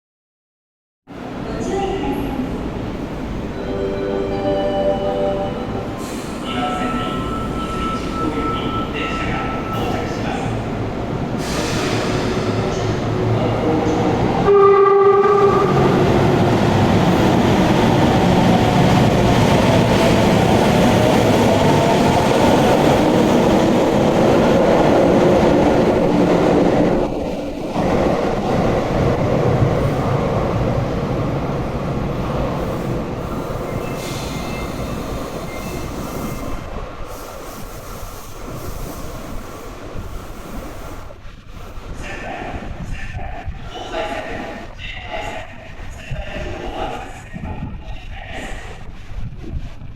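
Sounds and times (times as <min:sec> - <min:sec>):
train horn blast: 0:14.4 - 0:15.9.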